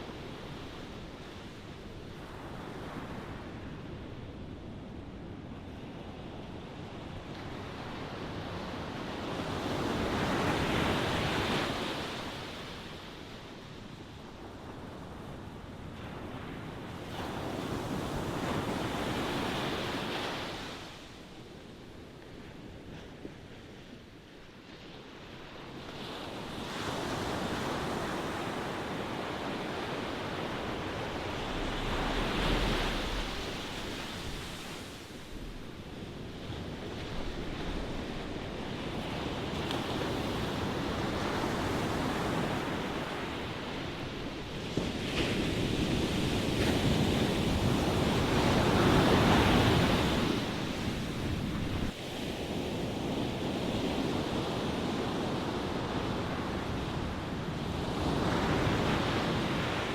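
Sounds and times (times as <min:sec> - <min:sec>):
ocean surf rushing: 0:27.7 - 0:43.7
waves breaking: 0:28.0 - 0:43.3.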